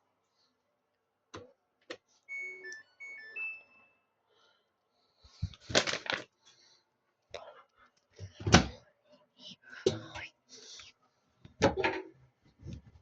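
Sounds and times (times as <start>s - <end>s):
electronic beeping melody: 2.3s - 4.0s.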